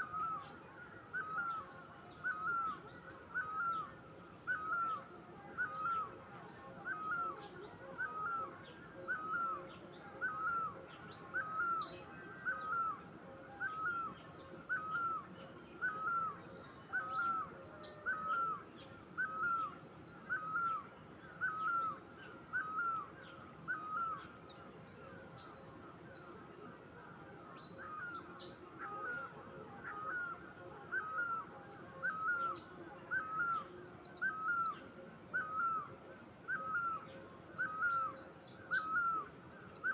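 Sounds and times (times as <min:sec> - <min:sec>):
birds twittering: 0:01.1 - 0:03.9, 0:10.2 - 0:13.0, 0:15.8 - 0:26.2, 0:27.4 - 0:29.2, 0:29.9 - 0:34.8, 0:36.5 - 0:39.9.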